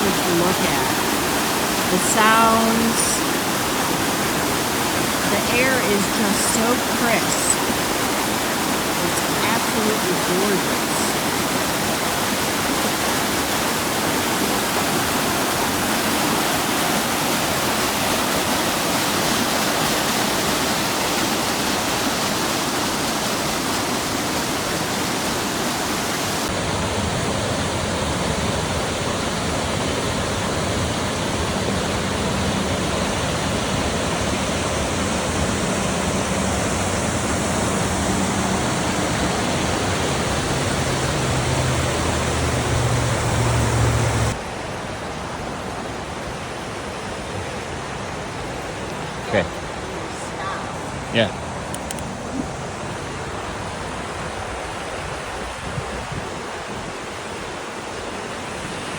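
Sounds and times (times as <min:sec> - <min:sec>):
stream cascading over rocks: 0:00.0 - 0:58.9.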